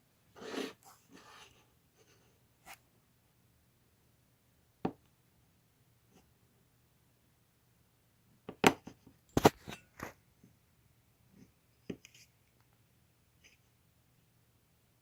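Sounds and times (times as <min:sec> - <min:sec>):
rustling scrape: 0:00.4 - 0:01.6.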